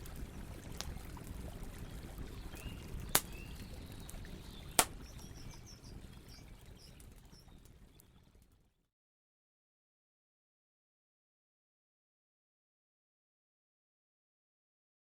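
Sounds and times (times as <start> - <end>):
campfire crackling: 0.0 - 8.8
faint bird chirps: 2.4 - 8.2
sharp pops of fire: 2.9 - 5.4.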